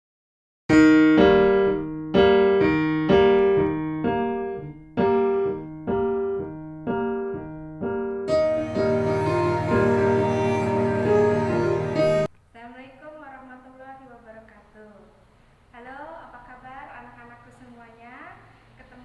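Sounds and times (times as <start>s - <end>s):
piano playing slow chords: 0.7s - 12.3s.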